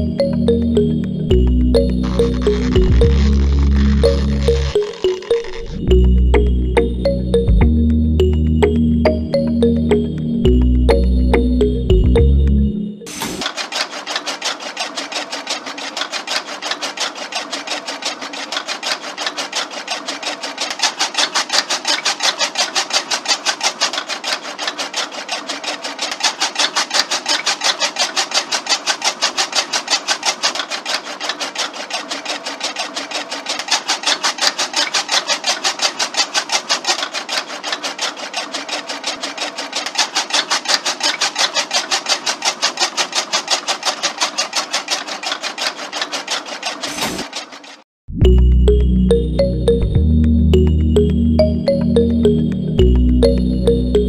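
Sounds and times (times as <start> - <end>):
small motor clattering: 0.0 - 49.5
blade chopping grass stalks: 13.1 - 47.8.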